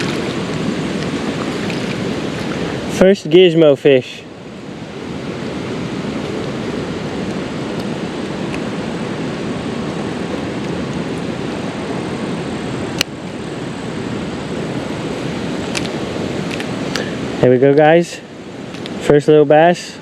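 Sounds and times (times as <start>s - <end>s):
creek water flowing: 0.0s - 19.0s
sharp click: 13.0s - 13.2s.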